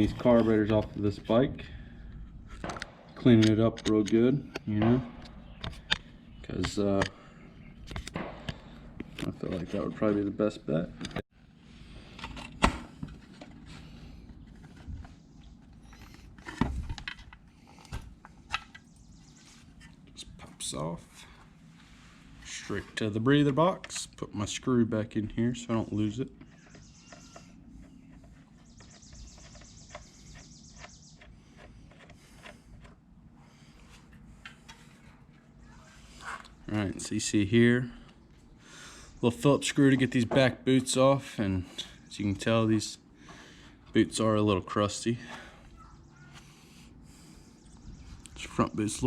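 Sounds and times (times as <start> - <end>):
low steady hum: 0.0 - 49.0
bird trilling: 26.4 - 31.6, 45.8 - 46.4.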